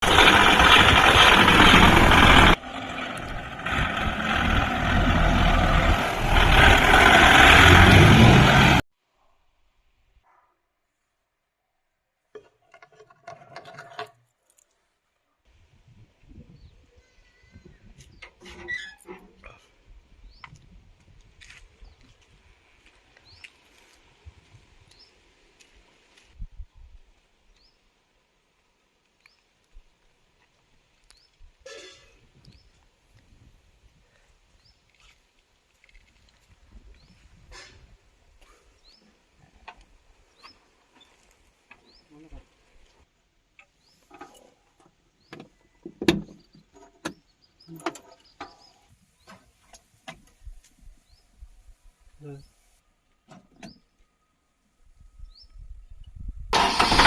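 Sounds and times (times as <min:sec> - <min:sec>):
tractor diesel engine running: 0:00.0 - 0:08.8, 0:56.6 - 0:57.0.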